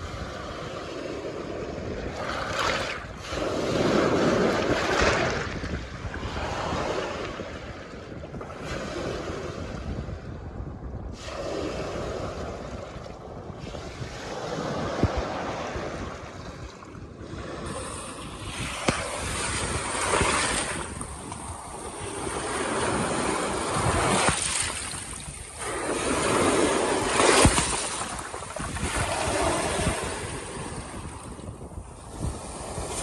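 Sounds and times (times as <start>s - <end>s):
waves breaking over rocks: 14.2s - 33.0s
sharp water splashes: 23.0s - 30.0s.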